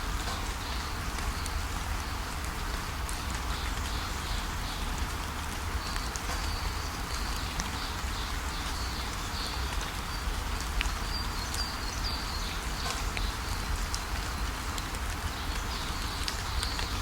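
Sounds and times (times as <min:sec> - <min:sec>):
small birds chirping: 0:05.7 - 0:14.6, 0:15.2 - 0:17.0.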